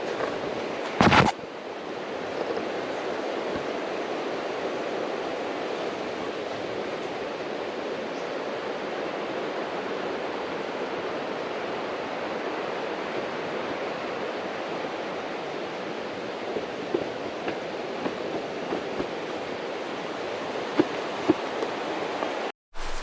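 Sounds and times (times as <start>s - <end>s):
river rushing: 21.4s - 23.0s.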